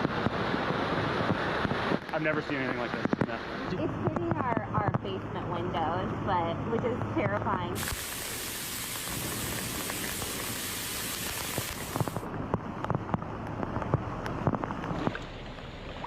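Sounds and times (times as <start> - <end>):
heavy rain hiss: 0.0 - 5.2, 7.8 - 12.2
water splashes and drips: 7.8 - 12.2.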